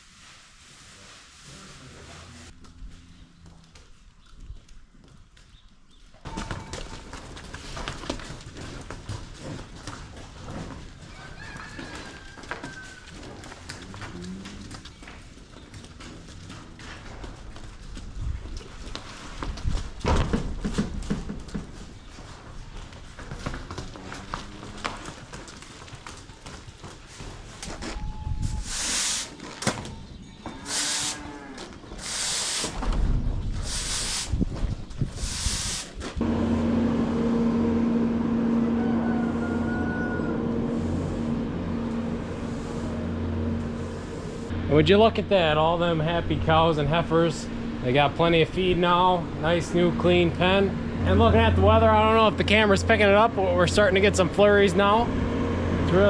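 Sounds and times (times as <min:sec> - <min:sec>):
cattle hooves knocking: 0:02.5 - 0:28.1, 0:37.9 - 0:56.0
short bursts of hiss: 0:28.6 - 0:29.4, 0:32.0 - 0:32.8, 0:33.6 - 0:34.4, 0:35.2 - 0:36.0.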